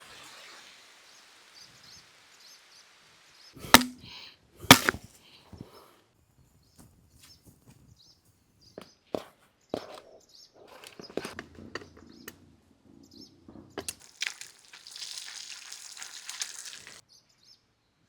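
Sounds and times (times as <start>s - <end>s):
sharp chopping strikes: 3.6s - 5.0s.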